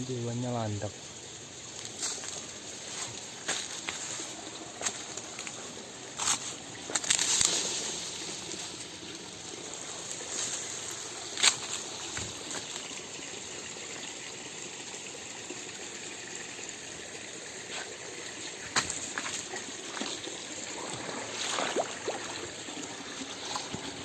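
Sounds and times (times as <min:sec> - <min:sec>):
river water rushing: 0:18.4 - 0:24.0.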